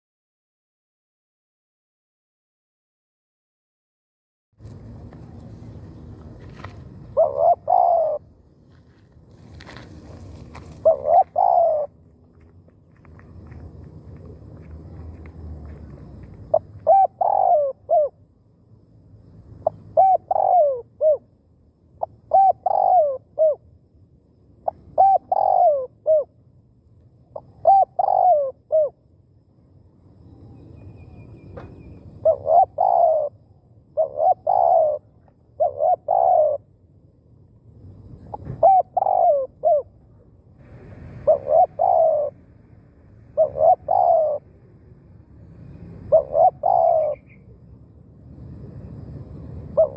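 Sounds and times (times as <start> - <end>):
dove cooing: 7.0 - 8.4, 9.6 - 12.0, 16.5 - 18.2, 19.6 - 21.3, 22.0 - 23.6, 24.6 - 26.4, 27.3 - 29.0, 32.1 - 36.7, 38.2 - 42.5, 43.2 - 44.9, 45.9 - 47.6, 49.6 - 49.9.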